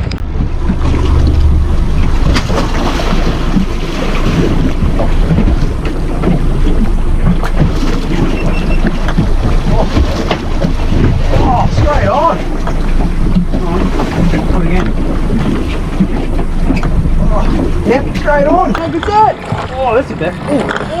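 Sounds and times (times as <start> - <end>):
sea moving around a hull: 0.0 - 21.0
wind buffeting the microphone: 0.0 - 21.0.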